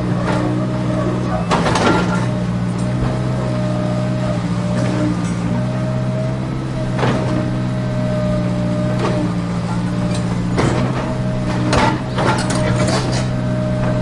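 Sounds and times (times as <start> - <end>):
sharp knocks and clatters: 1.5 - 3.0, 9.8 - 14.0.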